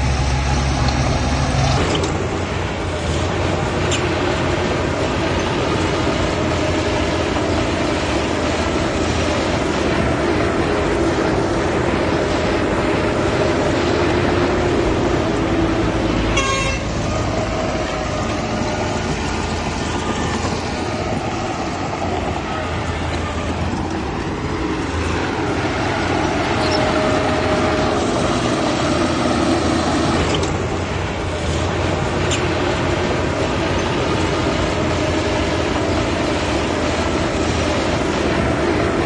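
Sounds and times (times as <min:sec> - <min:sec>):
heavy machinery diesel engines: 0:00.0 - 0:39.0
short horn toot: 0:16.3 - 0:16.9.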